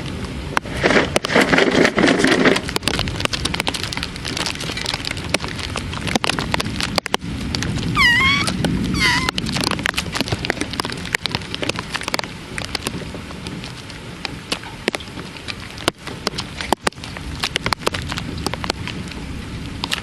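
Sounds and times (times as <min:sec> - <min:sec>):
rain hissing: 0:02.5 - 0:20.0
raindrops ticking: 0:02.6 - 0:20.0
brief chirping call: 0:08.0 - 0:09.3.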